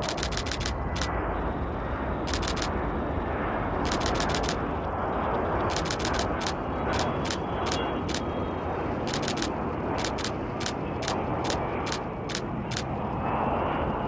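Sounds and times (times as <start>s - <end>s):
camera shutter clicks: 0.0s - 1.1s, 2.3s - 2.7s, 3.9s - 4.6s, 5.7s - 8.2s, 9.1s - 12.9s
distant jet aircraft roar: 0.0s - 14.0s.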